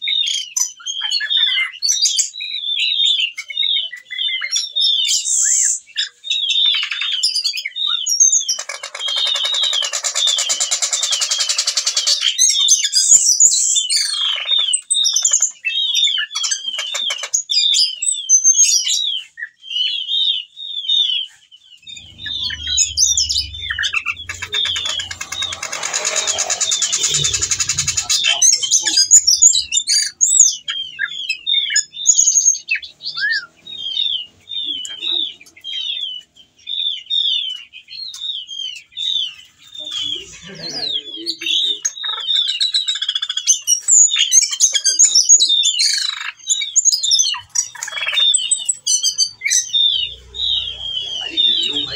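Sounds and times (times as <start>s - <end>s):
harsh buzzy bird rattles: 8.6s - 12.2s, 22.2s - 30.1s
thrush chirping song: 21.8s - 34.8s
low thumps: 21.9s - 29.7s.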